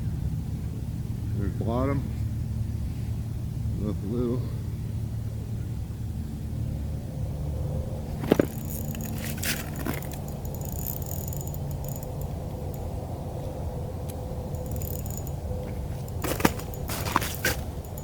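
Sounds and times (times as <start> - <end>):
steady low rumble: 0.0 - 18.0
light clicks and jingling rattles: 8.1 - 18.0.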